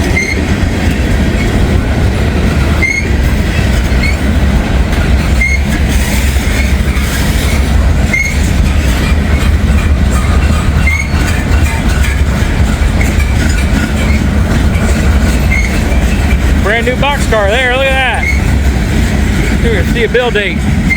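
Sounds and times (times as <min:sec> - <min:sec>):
high wheel squeaks: 0:00.0 - 0:01.6, 0:02.8 - 0:04.3, 0:04.9 - 0:18.7
steel wheels rumbling on rail: 0:00.0 - 0:20.9.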